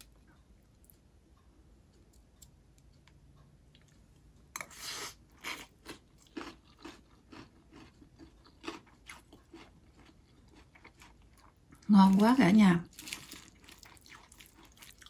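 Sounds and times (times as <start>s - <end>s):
person crunching salad: 4.6s - 12.2s, 12.8s - 15.0s.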